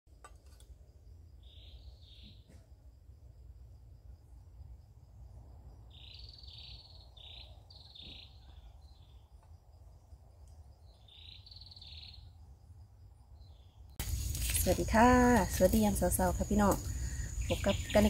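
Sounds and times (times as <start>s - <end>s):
faint insect trill: 0.1s - 18.0s.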